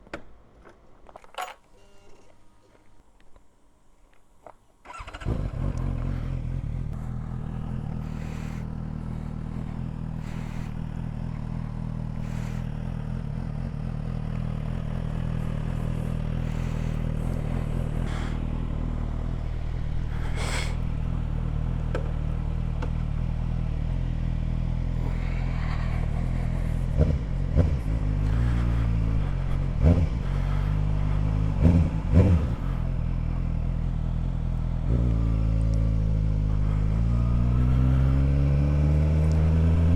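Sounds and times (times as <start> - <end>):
motorcycle engine starting and idling: 4.8 - 39.9
engine revving sharply: 4.9 - 13.2, 14.6 - 21.8, 24.8 - 33.7, 34.8 - 39.9.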